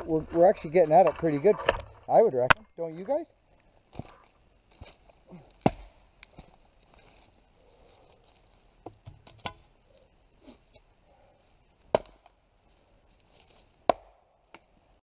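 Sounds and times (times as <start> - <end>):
axe chopping wood: 5.6 - 6.0, 11.9 - 12.3, 13.9 - 14.6.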